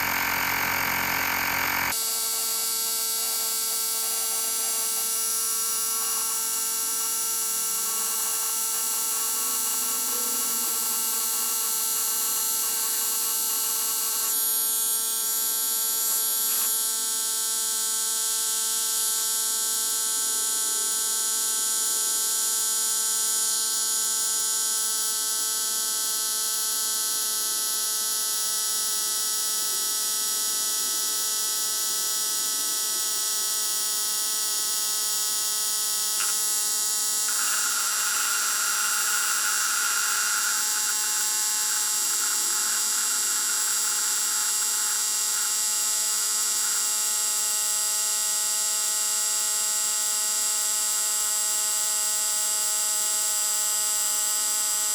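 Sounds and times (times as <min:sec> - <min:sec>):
air compressor running: 0:00.0 - 0:16.7, 0:35.8 - 0:48.3.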